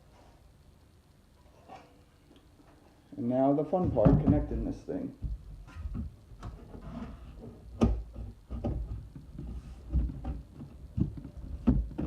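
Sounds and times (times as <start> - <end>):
sheet metal duct knocks and rustles: 3.8 - 4.6.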